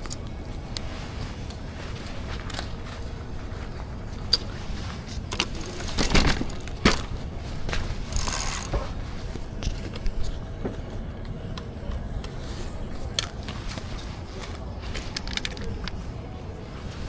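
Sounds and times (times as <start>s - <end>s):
metal parts clinking: 5.3s - 7.0s, 8.1s - 8.7s, 14.9s - 16.0s.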